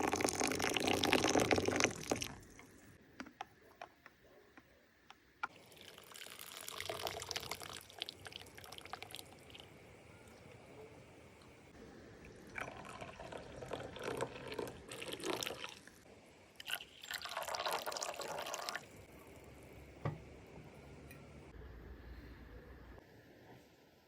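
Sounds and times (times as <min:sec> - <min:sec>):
water pouring into a vessel: 0:00.0 - 0:02.9, 0:05.5 - 0:09.8, 0:12.2 - 0:16.0, 0:16.6 - 0:19.1.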